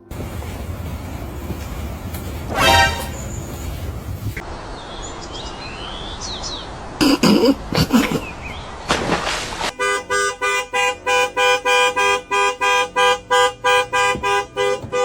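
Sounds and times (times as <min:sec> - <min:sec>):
rapid honking tones: 0:00.0 - 0:03.9, 0:09.7 - 0:15.0
short noisy burst: 0:02.5 - 0:03.9.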